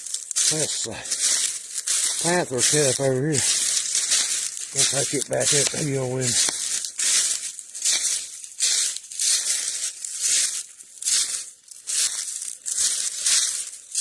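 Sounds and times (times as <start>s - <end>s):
footsteps crunching dry leaves: 0.0s - 14.0s.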